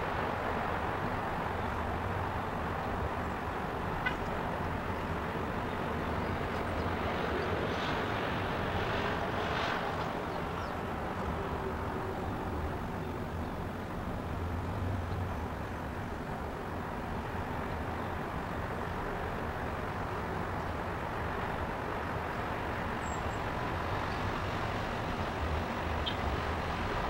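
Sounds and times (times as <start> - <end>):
low rumble of city traffic: 0.0 - 27.0.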